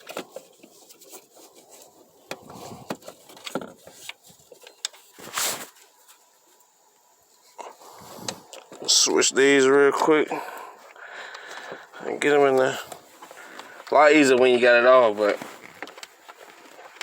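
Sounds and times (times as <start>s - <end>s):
hands rubbing and scraping: 11.6s - 17.0s.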